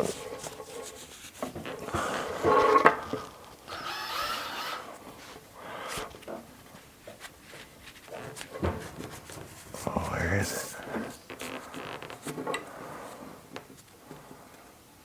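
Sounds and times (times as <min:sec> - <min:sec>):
rope and cord rubbing squeaking: 0:03.7 - 0:05.0.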